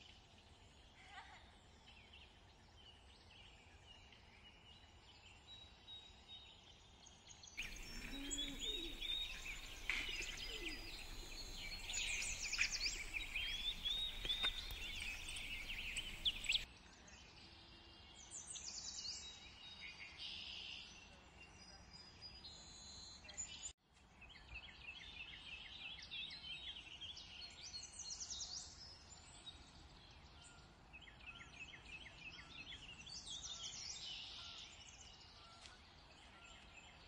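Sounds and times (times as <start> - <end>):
faint outdoor hiss: 7.6 - 16.7
small birds chirping: 7.6 - 16.7.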